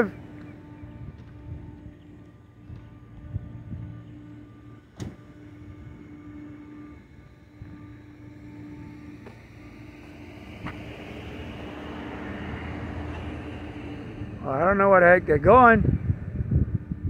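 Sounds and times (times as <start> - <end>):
car engine hum with road noise: 0.0 - 17.0.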